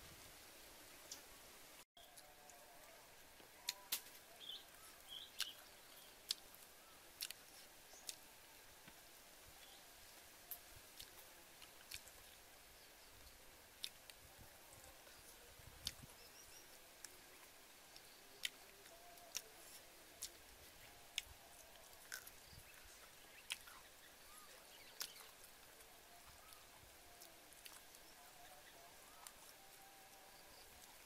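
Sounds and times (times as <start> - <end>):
background hiss: 0.0 - 31.0
person chewing: 7.2 - 7.4, 11.0 - 12.2, 21.2 - 22.4, 23.5 - 23.8, 27.2 - 28.0.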